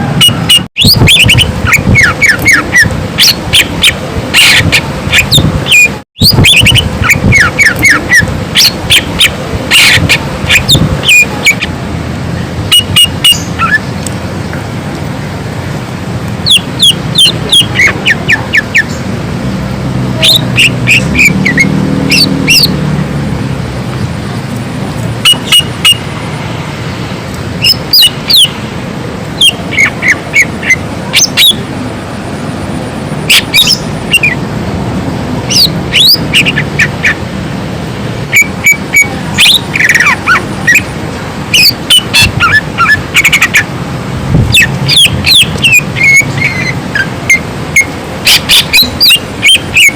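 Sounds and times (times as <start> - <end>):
bird singing whistled chirping notes: 0.2 - 11.7, 12.7 - 13.8, 16.4 - 19.0, 20.2 - 22.8, 33.3 - 34.4, 44.5 - 49.9.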